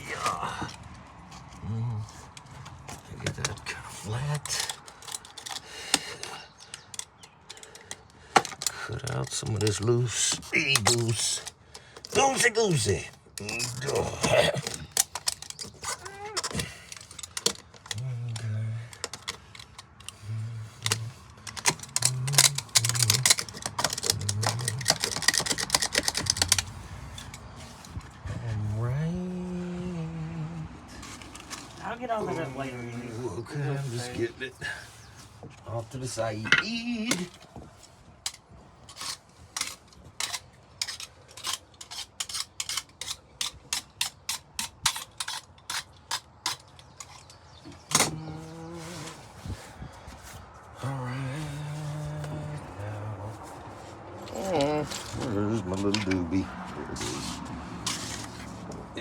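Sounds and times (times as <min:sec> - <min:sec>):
blade scraping wood: 0:09.4 - 0:28.8, 0:30.9 - 0:59.0
short low hums: 0:28.3 - 0:30.9.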